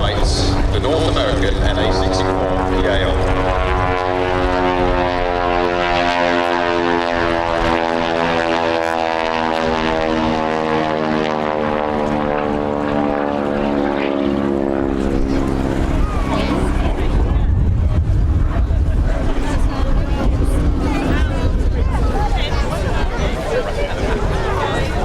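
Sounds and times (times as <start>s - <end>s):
radial engine and propeller drone: 0.0s - 25.0s.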